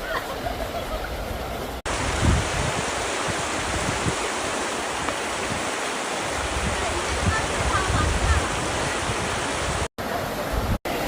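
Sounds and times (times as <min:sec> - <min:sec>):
creek water rushing: 0:00.0 - 0:11.0
wind noise on microphone: 0:01.1 - 0:09.9.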